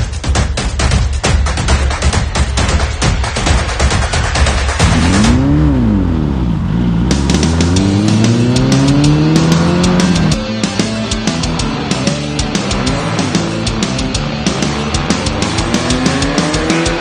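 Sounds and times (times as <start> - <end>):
music with a driving beat: 0.0 - 17.0
race vehicle engine revving: 4.4 - 17.0.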